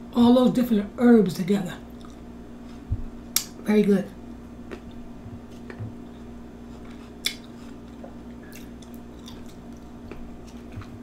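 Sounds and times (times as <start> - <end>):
faint steady hum: 0.0 - 11.0
chewing with wet mouth clicks: 1.9 - 2.2, 4.7 - 11.0.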